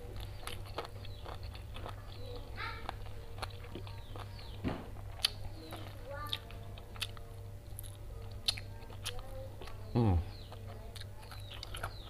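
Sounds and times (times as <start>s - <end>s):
person chewing noodles: 0.0s - 12.0s.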